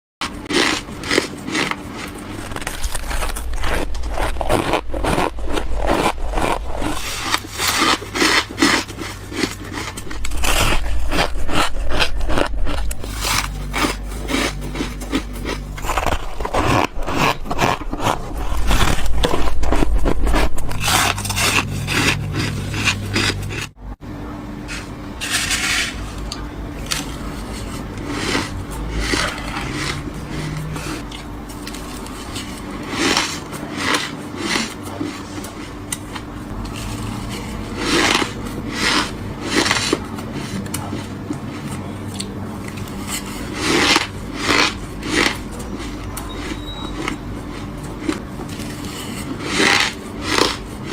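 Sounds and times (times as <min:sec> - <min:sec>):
chewing frost crunches: 0:00.2 - 0:10.0, 0:12.3 - 0:16.2.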